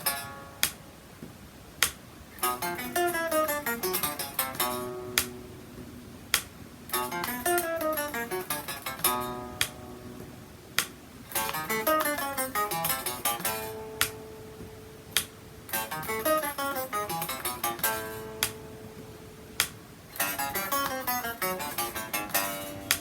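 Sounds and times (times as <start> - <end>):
guitar picking single notes: 0.0 - 23.0
sharp clicks: 0.6 - 0.8, 3.9 - 5.4, 17.2 - 18.6, 19.6 - 21.0.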